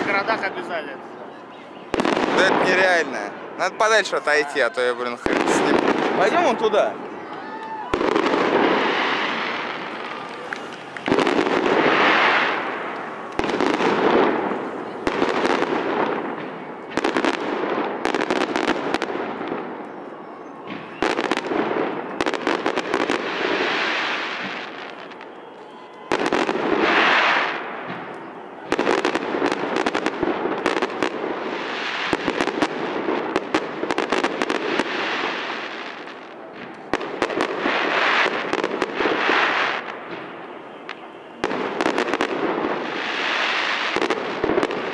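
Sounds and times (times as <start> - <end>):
firework crackling: 0.0 - 44.9
firework shells bursting: 7.3 - 19.7.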